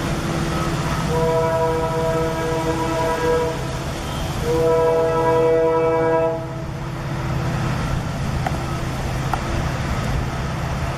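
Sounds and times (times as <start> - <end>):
moving train rumble: 0.0 - 10.9
train horn chord: 0.5 - 3.8, 4.4 - 6.8.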